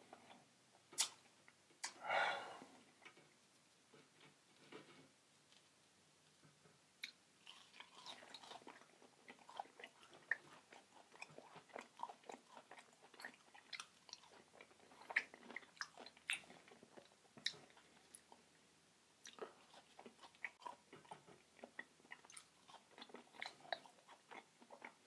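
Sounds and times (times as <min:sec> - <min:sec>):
wet mouth clicks: 0:01.0 - 0:01.2, 0:01.8 - 0:02.0
person chewing food: 0:07.0 - 0:18.5, 0:19.2 - 0:25.0.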